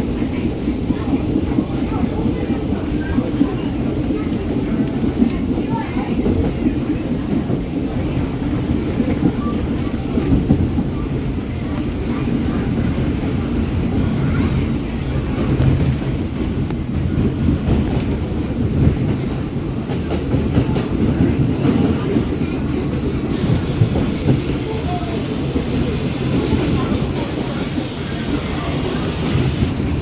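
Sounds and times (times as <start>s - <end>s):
subway train rumbling: 0.0s - 30.0s.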